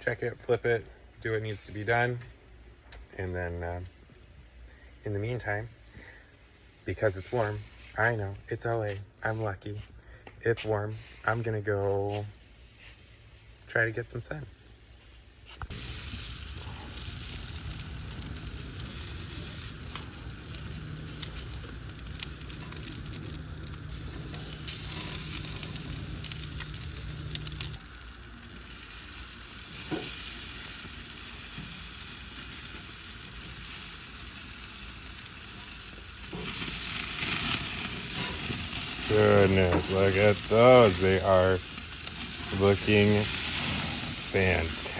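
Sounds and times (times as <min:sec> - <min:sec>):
chicken sizzling on a grill: 0:10.8 - 0:44.9
low hum: 0:15.7 - 0:34.0.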